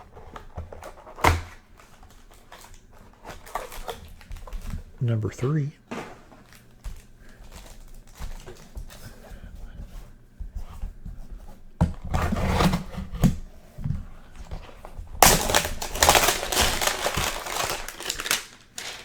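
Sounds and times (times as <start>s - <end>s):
cardboard box tearing and rustling: 15.2s - 19.0s.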